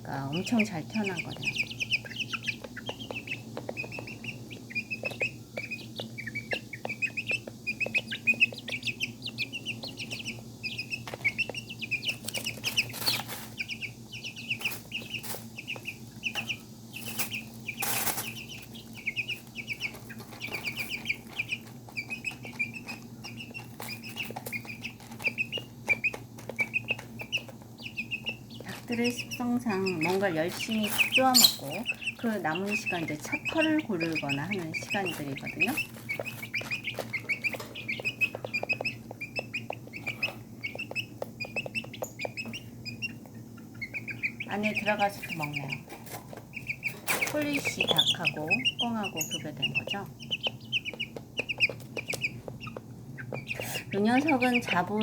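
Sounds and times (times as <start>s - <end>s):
chicks peeping: 0.0s - 55.0s
steady low hum: 0.0s - 55.0s
rustling: 11.0s - 13.9s, 14.5s - 41.0s.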